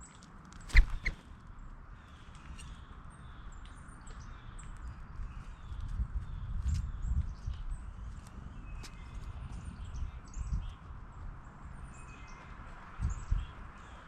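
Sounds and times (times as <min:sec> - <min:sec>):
faint bird chirps: 0:00.7 - 0:01.2.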